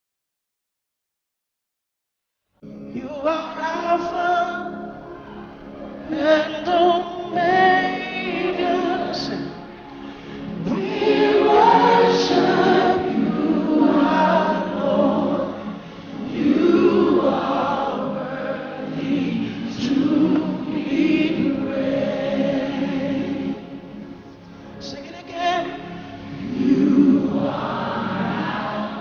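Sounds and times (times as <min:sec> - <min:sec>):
choir singing gospel song: 0:06.0 - 0:24.2, 0:25.3 - 0:29.0.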